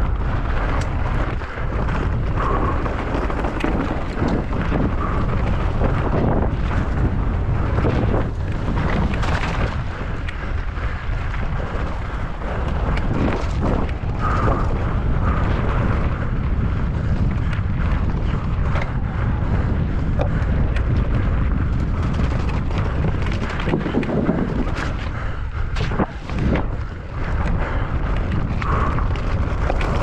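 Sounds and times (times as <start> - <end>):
bike rattles and knocks: 0.0 - 30.0
wind roaring over microphone: 0.0 - 30.0.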